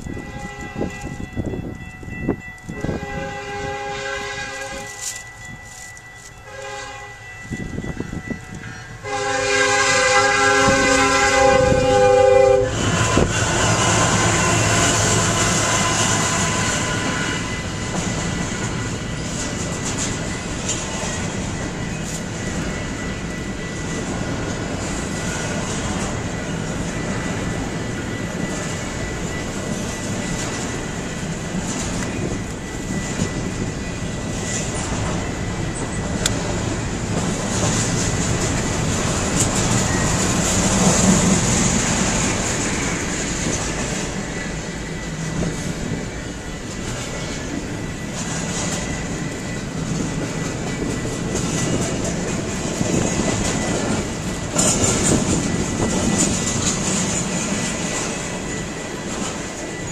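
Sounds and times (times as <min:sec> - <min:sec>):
freight train rolling past: 0:00.0 - 0:59.9
wheels clacking over rail joints: 0:12.8 - 0:59.9.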